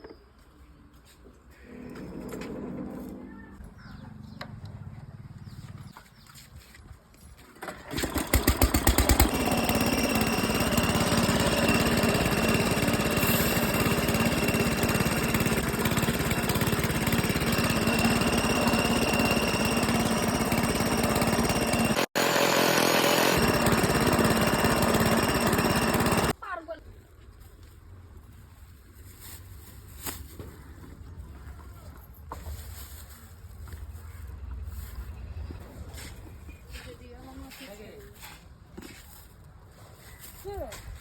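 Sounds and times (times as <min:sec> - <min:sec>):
mill grinding whine: 0:01.6 - 0:03.3, 0:07.9 - 0:26.3
motorcycle engine running: 0:08.1 - 0:26.3.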